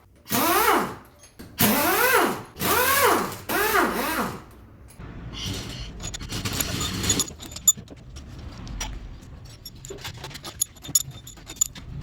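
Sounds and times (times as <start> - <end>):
metal clinking and tapping: 8.8 - 12.0.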